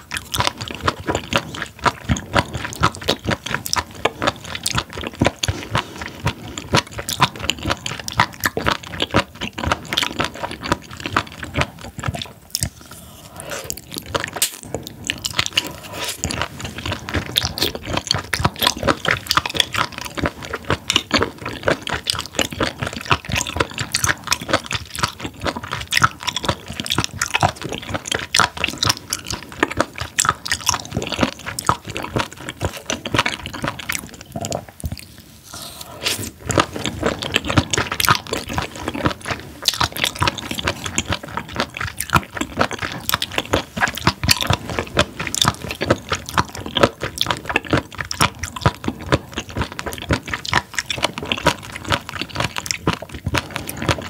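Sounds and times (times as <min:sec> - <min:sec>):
wet crunchy chewing clicks: 0:00.0 - 0:54.0.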